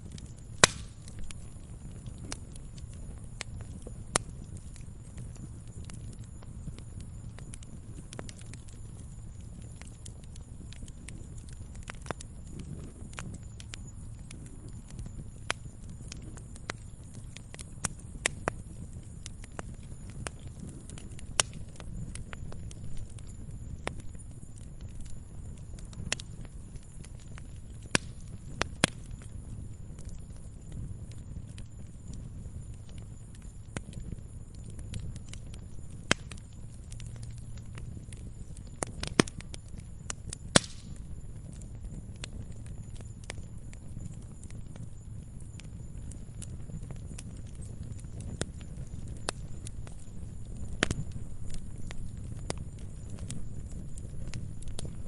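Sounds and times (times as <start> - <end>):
low rumble of flames: 0.0 - 55.0
wood fire crackling: 0.0 - 55.0
loud sharp pops: 0.6 - 1.0, 40.5 - 40.9.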